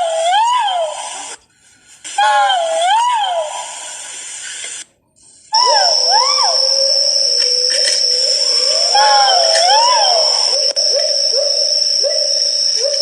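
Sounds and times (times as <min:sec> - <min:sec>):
high-pitched whine: 0:05.6 - 0:13.0.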